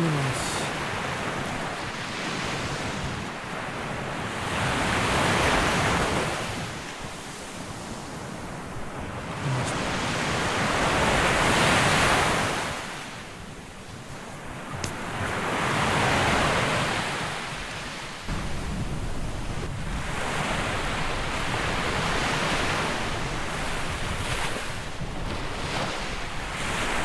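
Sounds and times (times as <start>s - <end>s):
surf washing onto beach: 0.0s - 13.0s
wind on microphone: 18.3s - 27.0s.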